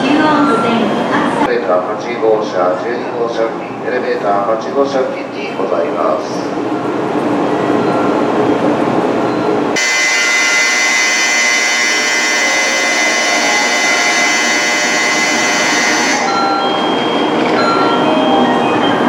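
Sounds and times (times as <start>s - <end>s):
electronic platform departure bell: 9.2s - 19.0s.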